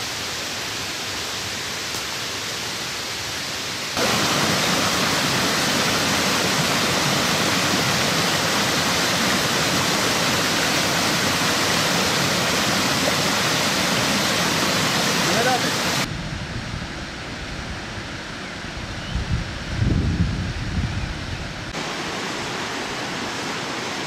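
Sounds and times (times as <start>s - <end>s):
rushing water: 0.0s - 16.1s, 21.1s - 24.0s.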